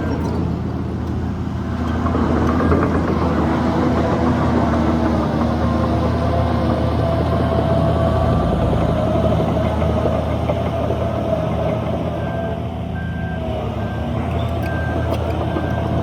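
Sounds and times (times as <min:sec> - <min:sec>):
heavy diesel machinery running: 0:00.0 - 0:16.0
reversing alarm beeping: 0:11.9 - 0:16.0.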